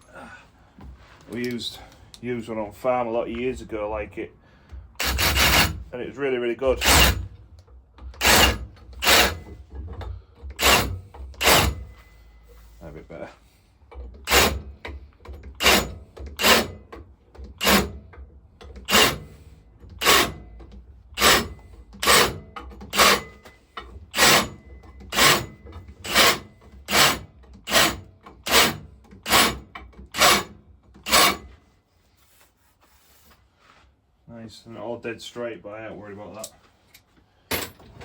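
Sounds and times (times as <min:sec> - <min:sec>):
file rasping on metal pipe: 0:05.0 - 0:05.9, 0:06.8 - 0:07.2, 0:08.2 - 0:09.6, 0:10.6 - 0:11.9, 0:14.2 - 0:14.7, 0:15.6 - 0:16.9, 0:17.6 - 0:18.0, 0:18.8 - 0:20.5, 0:21.2 - 0:23.4, 0:24.1 - 0:30.5, 0:31.1 - 0:31.6.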